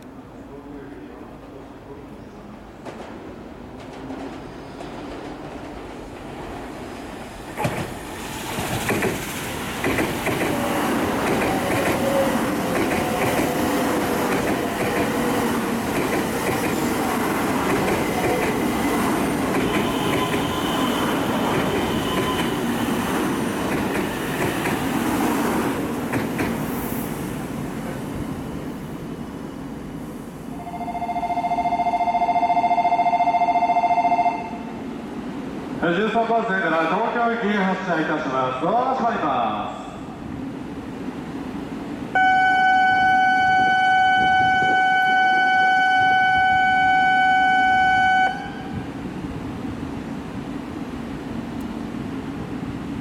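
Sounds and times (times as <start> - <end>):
train wheels rumbling and clicking: 2.5 - 28.4
platform bell ringing: 30.6 - 34.6.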